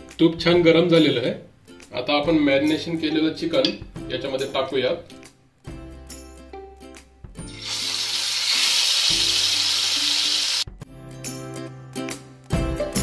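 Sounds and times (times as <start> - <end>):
background music: 0.0 - 13.0
chicken sizzling in hot oil: 7.5 - 10.7.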